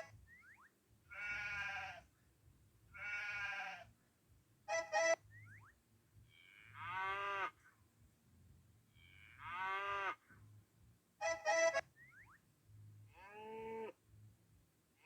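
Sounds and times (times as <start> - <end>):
sheep bleating: 1.1 - 2.0, 3.0 - 3.9.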